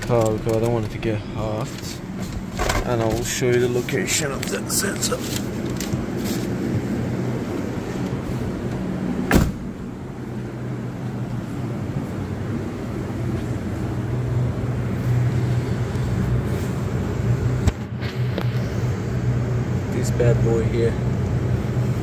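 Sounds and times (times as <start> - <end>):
car engine idling: 0.0 - 22.0
loud sharp thump: 9.3 - 9.8.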